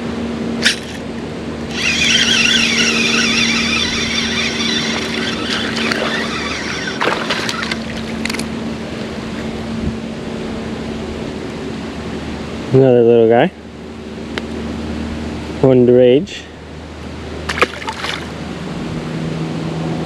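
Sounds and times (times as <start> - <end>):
steady low hum: 0.0 - 20.0
fishing reel whirring: 0.6 - 1.1, 1.7 - 8.5
reel clicks: 1.7 - 8.5.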